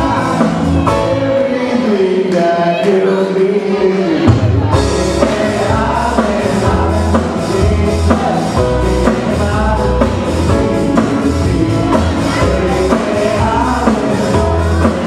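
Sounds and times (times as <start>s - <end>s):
bass line: 0.0s - 15.0s
live band playing: 0.0s - 15.0s
person singing: 0.0s - 15.0s.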